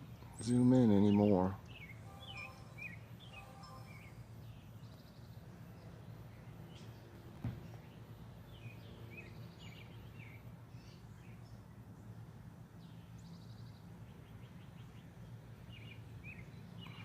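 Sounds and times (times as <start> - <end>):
low background hum: 0.0 - 17.0
bird chirps and calls: 0.4 - 7.1, 7.7 - 12.2, 12.8 - 17.0
brief thump: 7.4 - 7.7.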